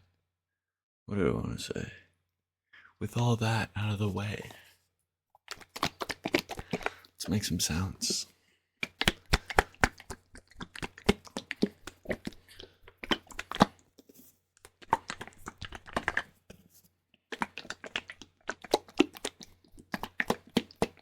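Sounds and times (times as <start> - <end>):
wet liquid clicks and crackles: 5.3 - 7.4, 8.8 - 21.0.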